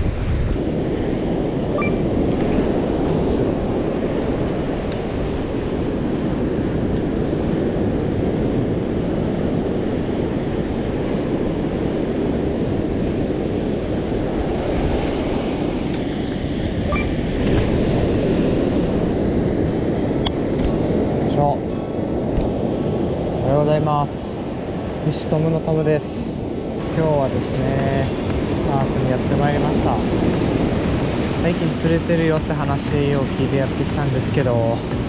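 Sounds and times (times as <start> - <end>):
heavy surf washing onto beach: 0.0 - 35.0.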